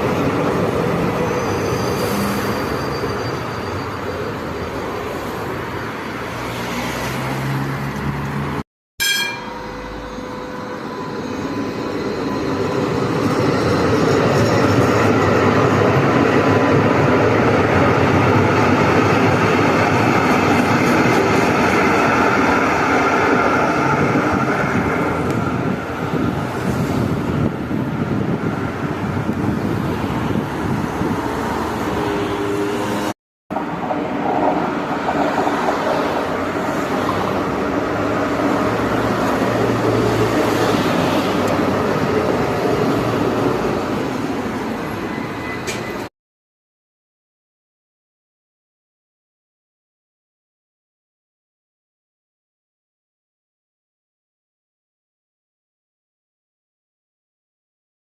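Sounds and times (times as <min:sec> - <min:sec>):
tram running on rails: 0:00.0 - 0:46.1
short ding: 0:09.0 - 0:10.2.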